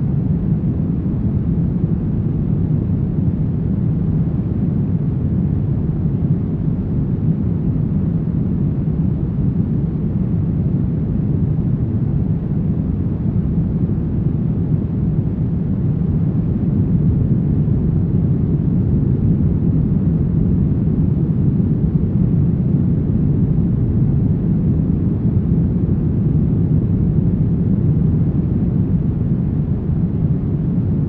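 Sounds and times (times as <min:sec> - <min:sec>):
deep steady brown noise hiss: 0:00.0 - 0:31.0.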